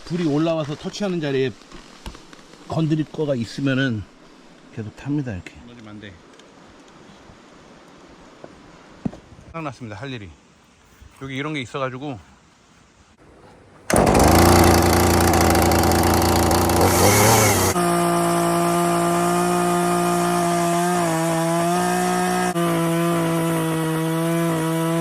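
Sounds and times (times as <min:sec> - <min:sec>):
chainsaw cutting log: 0:13.4 - 0:25.0.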